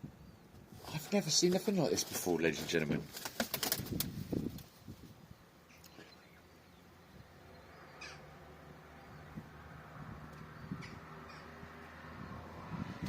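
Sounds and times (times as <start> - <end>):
seagulls calling: 7.8 - 8.4.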